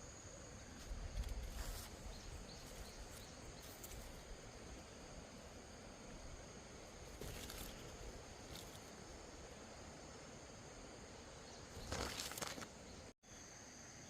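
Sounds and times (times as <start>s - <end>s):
soft rustles: 0.8s - 4.4s.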